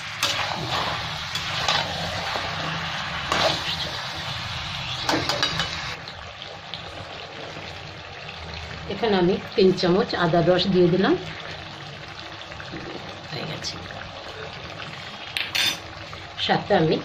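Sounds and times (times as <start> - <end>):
chicken sizzling in oil: 0.0 - 17.0
spatula scraping and knocking pan: 5.0 - 5.9.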